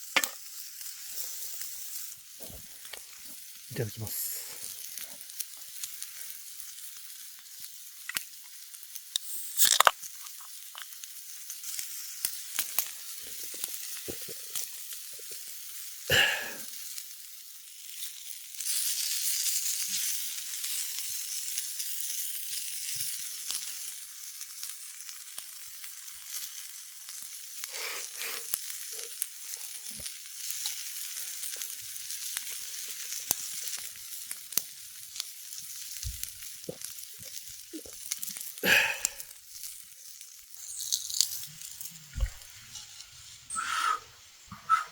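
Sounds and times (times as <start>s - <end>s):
fire crackles: 0.0s - 44.5s
food sizzling over campfire: 0.0s - 44.8s.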